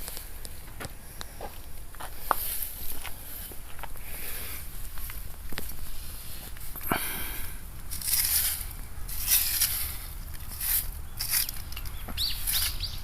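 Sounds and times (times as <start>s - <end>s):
rustling and scraping: 0.0s - 13.0s.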